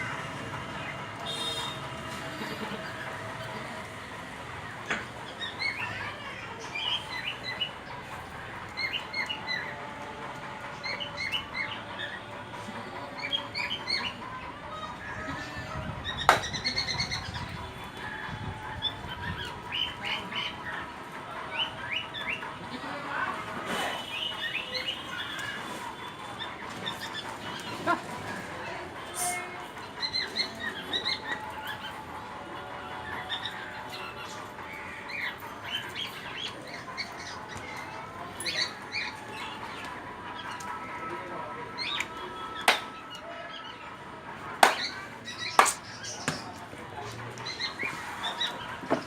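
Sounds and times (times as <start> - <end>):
birds calling: 13.1 - 18.0, 44.6 - 49.0.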